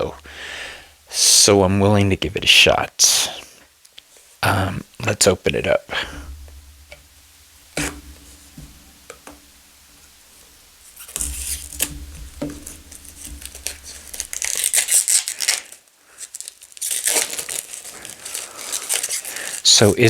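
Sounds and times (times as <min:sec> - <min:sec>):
packaging torn and crinkled: 0:12.9 - 0:19.9.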